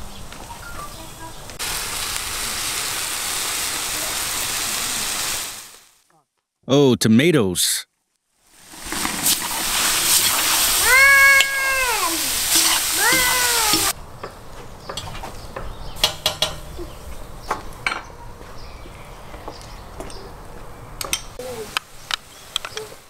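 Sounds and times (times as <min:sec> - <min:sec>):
sausage sizzling in a pan: 0:01.6 - 0:06.0, 0:08.4 - 0:14.0
cat meowing: 0:10.8 - 0:12.3
spoon stirring in a pan: 0:12.4 - 0:14.0.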